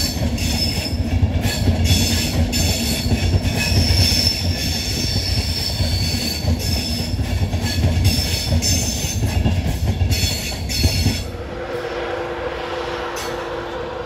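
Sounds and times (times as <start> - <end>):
train wheels rumbling on track: 0.0 - 14.0
locomotive hum: 8.6 - 14.0.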